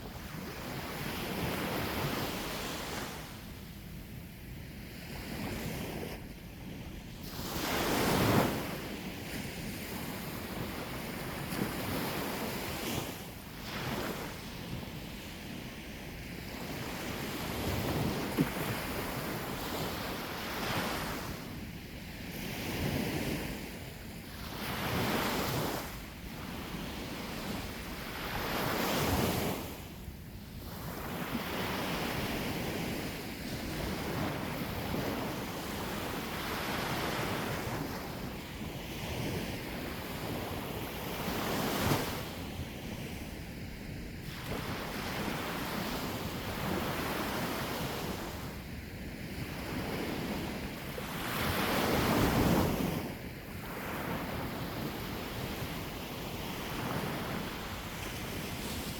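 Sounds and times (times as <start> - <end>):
sea waves breaking on shore: 7.2 - 15.6, 49.3 - 58.9.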